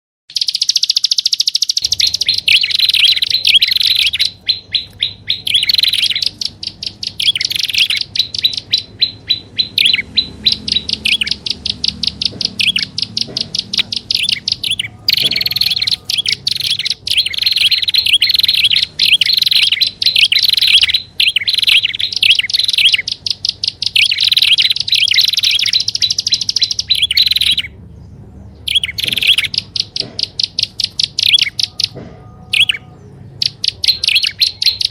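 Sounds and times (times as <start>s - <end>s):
bird chattering rapid high notes: 0.3s - 27.8s, 28.6s - 34.9s.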